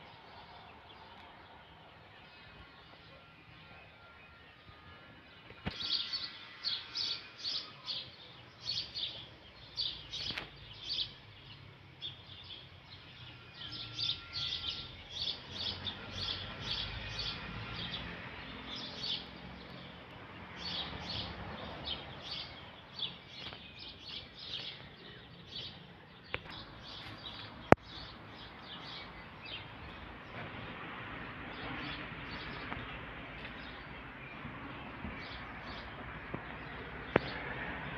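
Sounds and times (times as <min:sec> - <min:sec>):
small birds chirping: 0:05.4 - 0:37.5.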